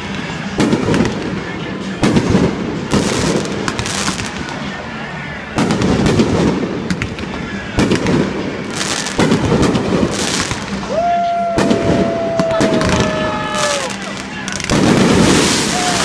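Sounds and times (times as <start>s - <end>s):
firework crackling: 0.0s - 16.0s
firework shells booming: 11.6s - 16.0s.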